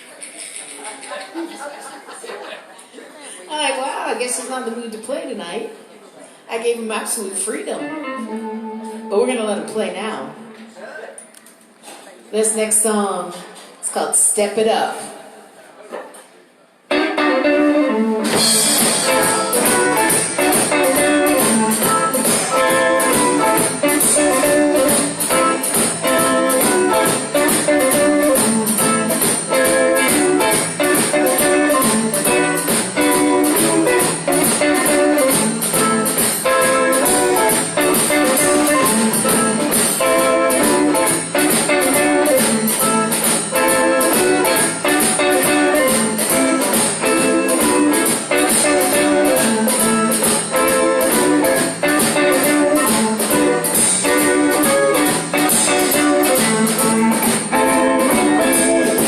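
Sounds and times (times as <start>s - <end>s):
blues band playing: 6.5s - 10.8s, 12.4s - 15.1s, 16.8s - 59.0s
drum kit cymbals: 18.2s - 59.0s.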